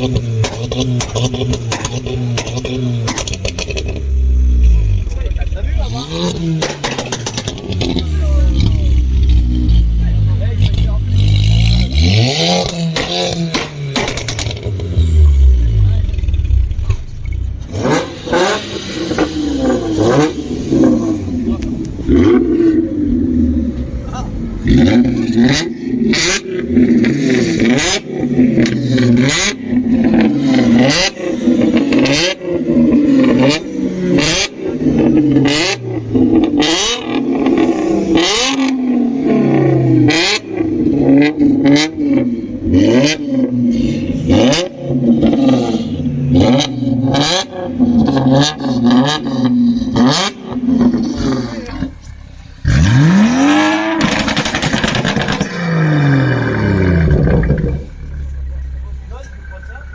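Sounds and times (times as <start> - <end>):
exhaust pops and bangs: 0.0 - 11.6, 12.5 - 22.8, 49.9 - 59.9
sports car engine revving: 0.0 - 59.9.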